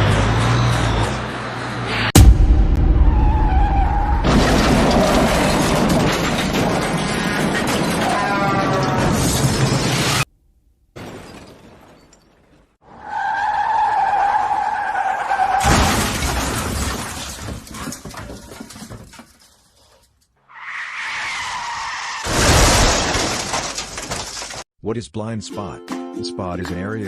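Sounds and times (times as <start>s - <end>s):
car crash with shattering glass: 2.2s - 10.3s, 11.0s - 12.8s, 14.5s - 19.8s, 21.2s - 24.7s
car tyres screeching: 12.8s - 15.7s, 20.4s - 22.3s.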